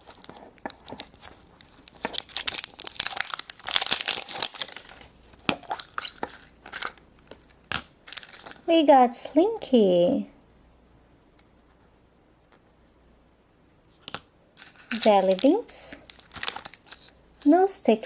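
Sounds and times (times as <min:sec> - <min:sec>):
wrapper crinkling and tearing: 0:00.0 - 0:08.7, 0:14.6 - 0:17.5.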